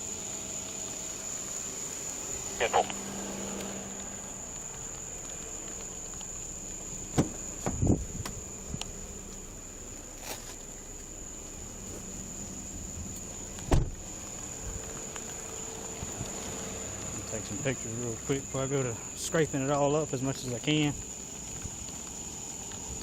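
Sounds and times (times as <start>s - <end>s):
high-pitched insect trill: 0.0s - 23.0s
dull knocks and handling bumps: 7.1s - 8.4s.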